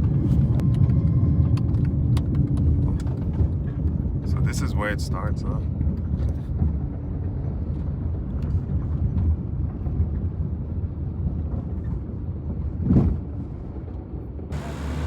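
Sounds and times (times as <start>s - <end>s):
car driving rumble: 14.5s - 15.0s.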